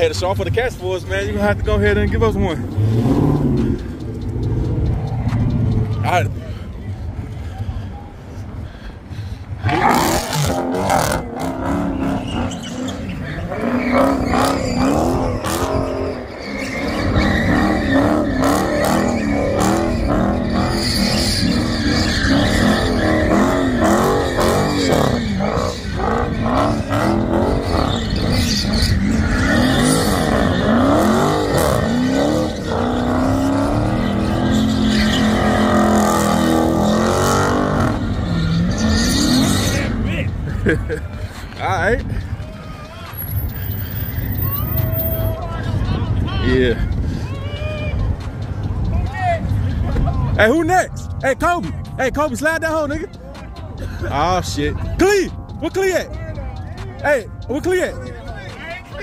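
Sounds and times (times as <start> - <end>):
car engine revving hard: 1.1 - 6.2, 9.6 - 40.4
tyres squealing: 9.6 - 40.2, 42.6 - 45.8.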